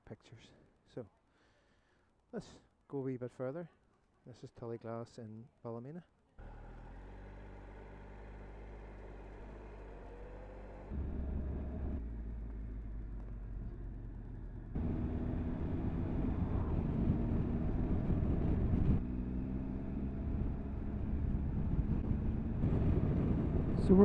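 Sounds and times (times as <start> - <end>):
motorcycle engine accelerating: 6.4 - 24.0.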